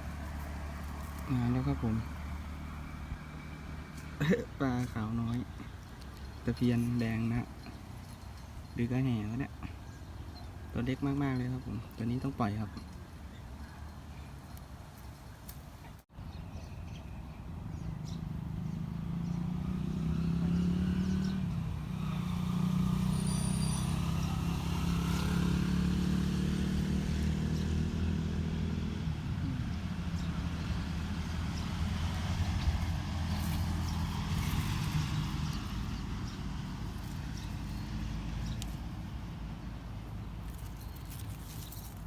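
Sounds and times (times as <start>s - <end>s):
motor engine running: 26.0s - 39.8s.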